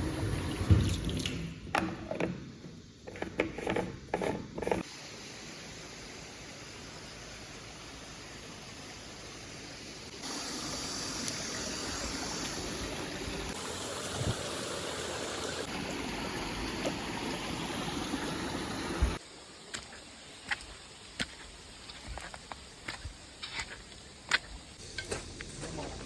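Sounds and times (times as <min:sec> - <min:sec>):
water rushing: 0:05.0 - 0:19.2.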